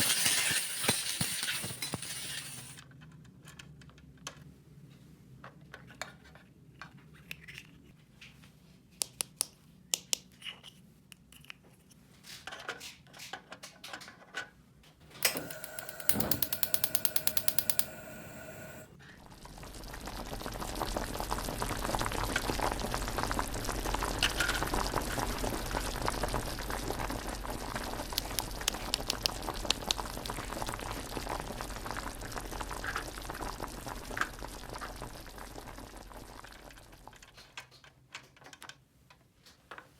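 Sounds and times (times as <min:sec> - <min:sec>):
ratchet-like clicks: 0:00.0 - 0:02.8, 0:15.2 - 0:18.9, 0:28.1 - 0:30.0
water running: 0:15.1 - 0:18.9, 0:19.9 - 0:37.1.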